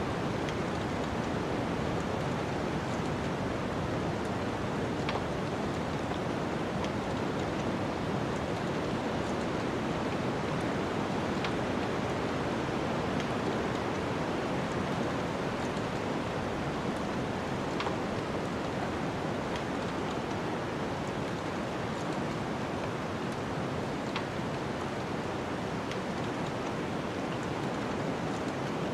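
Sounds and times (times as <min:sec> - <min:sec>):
wood fire crackling: 0:00.1 - 0:22.5.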